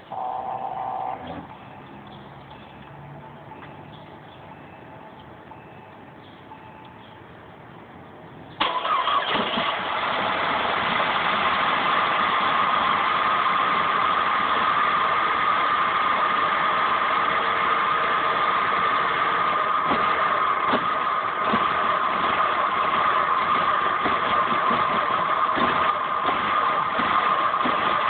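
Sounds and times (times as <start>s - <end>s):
car engine starting and idling: 7.9s - 28.0s.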